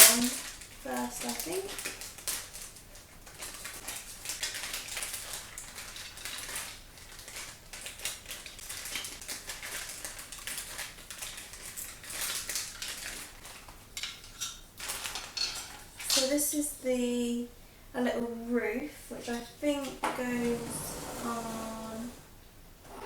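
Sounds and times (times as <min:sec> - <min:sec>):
plastic toy parts clicking and rattling: 0:00.0 - 0:16.3.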